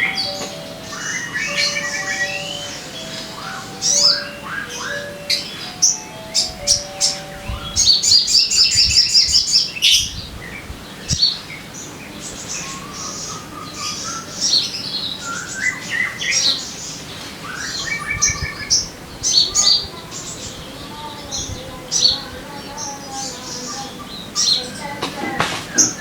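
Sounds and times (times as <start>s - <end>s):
bird whistled notes: 0.0s - 10.1s
bird chattering trill: 0.0s - 25.0s
bird chirps: 0.0s - 26.0s.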